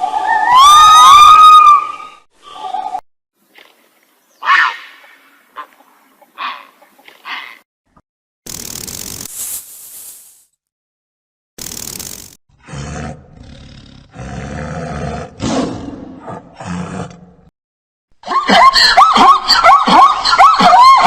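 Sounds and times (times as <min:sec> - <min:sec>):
brief hiss: 0:09.0 - 0:10.6.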